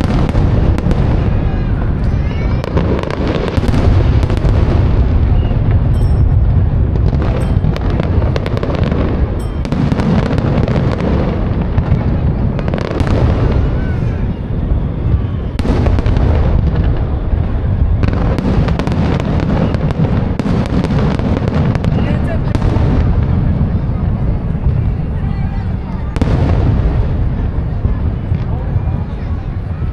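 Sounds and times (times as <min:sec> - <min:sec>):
fireworks crackling: 0:00.0 - 0:29.9
fireworks shell bursts rumbling: 0:02.7 - 0:14.1.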